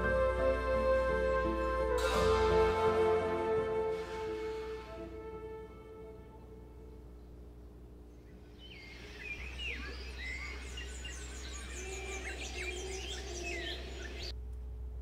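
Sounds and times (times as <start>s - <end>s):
low steady hum: 0.0s - 15.0s
small birds chirping: 7.1s - 14.3s.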